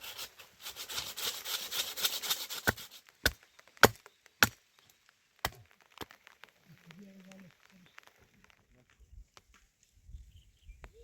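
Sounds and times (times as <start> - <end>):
rasping on wood: 0.0 - 3.4
sharp chopping knocks: 2.6 - 4.6.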